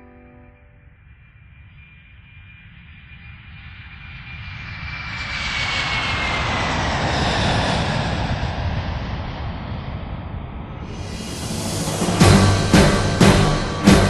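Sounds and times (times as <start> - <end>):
jet airliner passing overhead: 0.0 - 14.0
high engine whine: 10.7 - 14.0.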